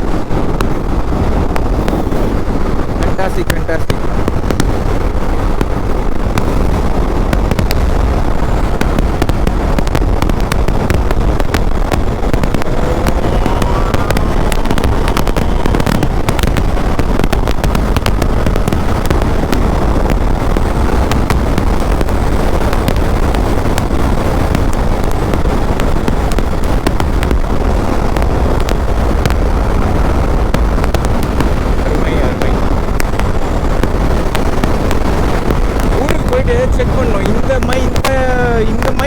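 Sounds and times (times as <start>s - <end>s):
wind rumbling against microphone: 0.0s - 39.0s
rising whine: 10.8s - 21.2s.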